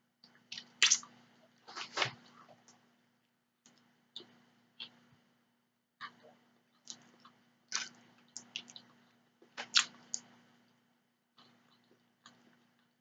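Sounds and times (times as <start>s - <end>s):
wet chewing clicks and smacks: 0.2s - 1.2s, 6.0s - 10.8s, 11.4s - 13.0s.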